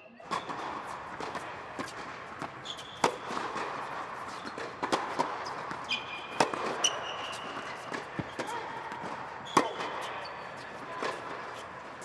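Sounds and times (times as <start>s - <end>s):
tennis balls struck by rackets: 0.3s - 12.0s
short high squeaks: 1.8s - 4.8s, 5.4s - 8.4s, 9.4s - 10.8s.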